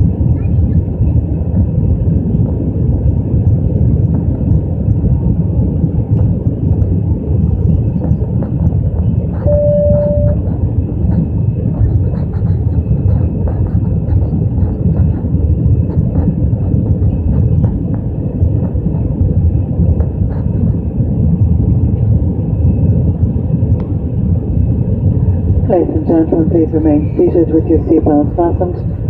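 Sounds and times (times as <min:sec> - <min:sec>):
airplane cabin engine rumble: 0:00.0 - 0:29.0
short beep: 0:09.5 - 0:10.4.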